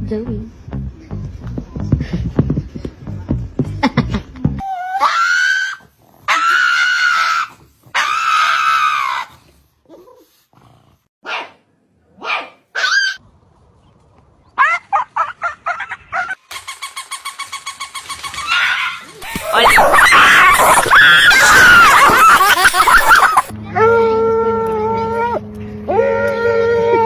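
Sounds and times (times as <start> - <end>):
dog howling and yelping: 4.6 - 9.4, 18.5 - 23.5
dog barking: 11.2 - 11.6, 12.2 - 13.2, 19.2 - 23.5.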